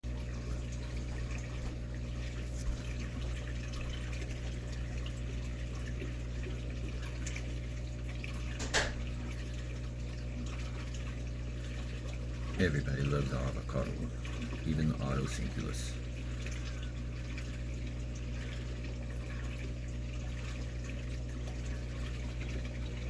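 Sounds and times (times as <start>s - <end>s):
filter pump humming: 0.0s - 23.0s
water trickling: 0.0s - 23.0s.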